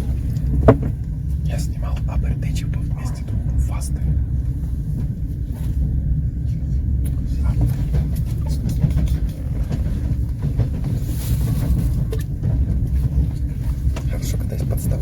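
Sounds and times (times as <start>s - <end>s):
light knocks and rattles: 0.0s - 1.2s, 7.0s - 15.0s
train wheels rumbling: 0.0s - 15.0s.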